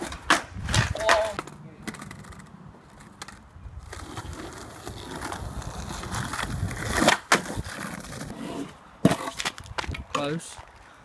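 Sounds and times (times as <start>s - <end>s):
skateboard clacking: 0.0s - 4.4s, 9.0s - 10.3s
skateboard wheels rolling on concrete: 0.0s - 11.0s.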